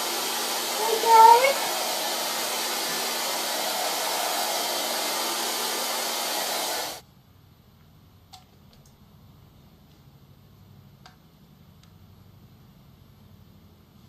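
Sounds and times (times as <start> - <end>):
hair dryer blowing: 0.0 - 7.0.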